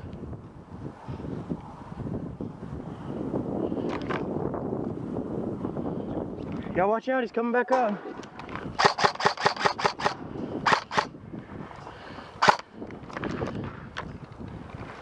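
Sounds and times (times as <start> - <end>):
airsoft gun shots: 8.8 - 11.1, 12.4 - 12.6.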